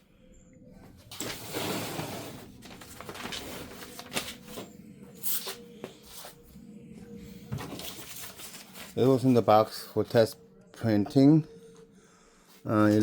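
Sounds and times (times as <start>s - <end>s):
paper and packaging rustling: 1.1s - 6.4s, 7.4s - 10.2s.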